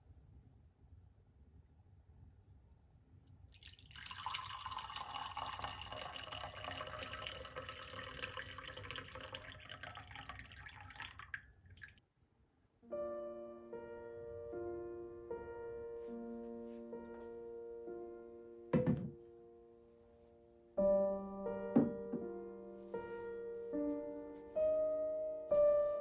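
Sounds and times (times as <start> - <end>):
water running from a tap: 3.5 - 12.0.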